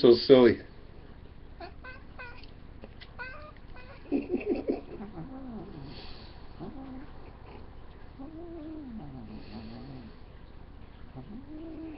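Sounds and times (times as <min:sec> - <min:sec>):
cat meowing: 0:01.6 - 0:02.5, 0:03.1 - 0:04.2.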